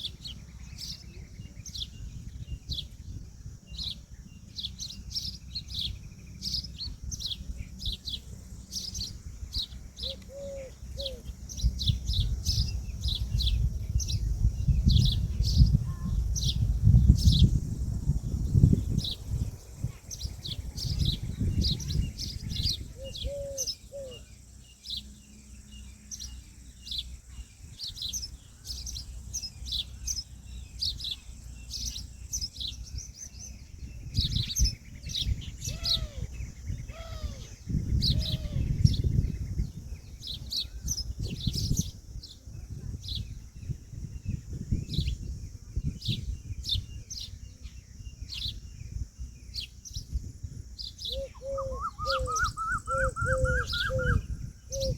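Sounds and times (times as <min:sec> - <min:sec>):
small birds chirping: 0:00.0 - 0:54.9
peahen calls: 0:35.6 - 0:36.3, 0:51.1 - 0:54.9.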